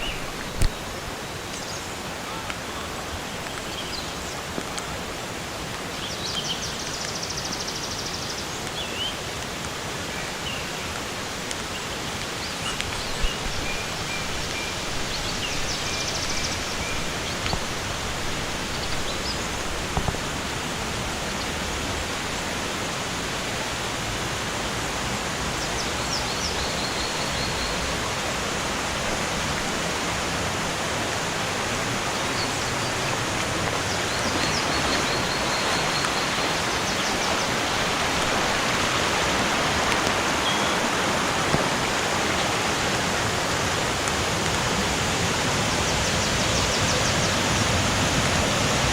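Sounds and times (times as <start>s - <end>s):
rushing water: 0.0s - 48.9s
birds chirping trills: 11.8s - 17.8s, 32.1s - 42.0s.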